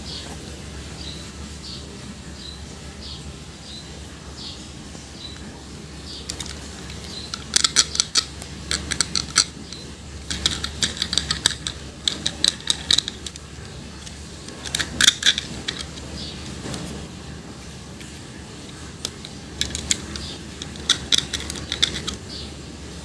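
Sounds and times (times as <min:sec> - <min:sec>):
plastic toys clicking and clattering: 0:06.2 - 0:17.1, 0:18.0 - 0:22.5.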